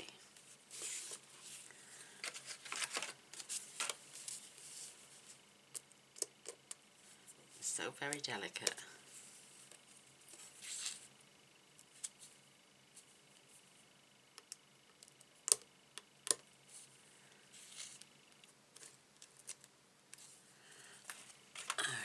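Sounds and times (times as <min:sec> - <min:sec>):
soft rustles of craft pieces: 0:00.0 - 0:05.5, 0:07.0 - 0:11.2, 0:16.6 - 0:21.8.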